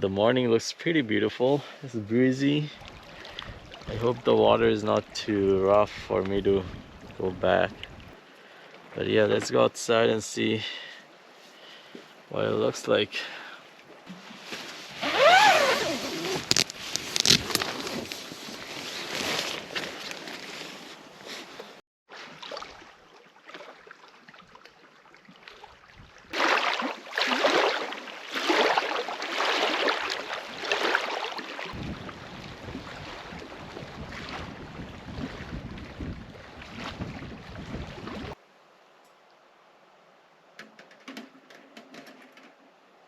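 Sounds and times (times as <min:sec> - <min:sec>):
wind buffeting microphone: 0:02.8 - 0:08.2, 0:31.7 - 0:38.4
waves washing in: 0:26.3 - 0:38.4
wind gusting: 0:31.8 - 0:38.4.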